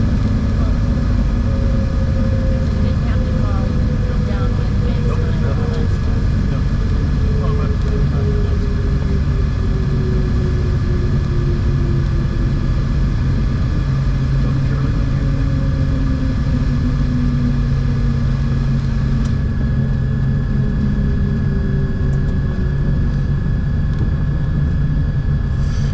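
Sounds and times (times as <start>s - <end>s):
aircraft propeller engines humming: 0.0s - 25.9s.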